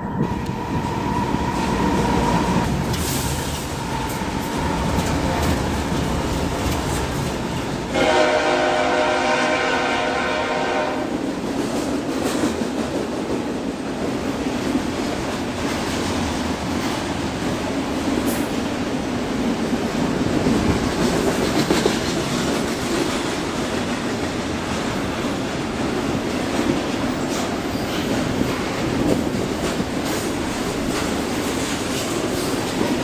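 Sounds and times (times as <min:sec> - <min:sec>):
train passing on rails: 0:00.0 - 0:33.0
train horn blast: 0:07.8 - 0:11.2.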